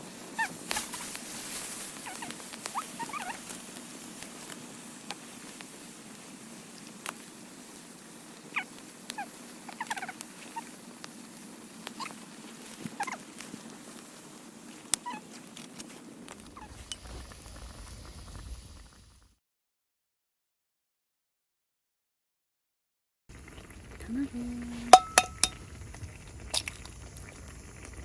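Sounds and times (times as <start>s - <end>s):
campfire pops and crackles: 0.0s - 19.2s, 23.3s - 28.0s
food simmering in frying pan: 0.0s - 19.4s, 23.3s - 28.0s
squeaky bubbling: 1.9s - 3.6s, 8.4s - 11.0s, 11.7s - 13.4s, 16.3s - 17.7s, 23.8s - 25.7s.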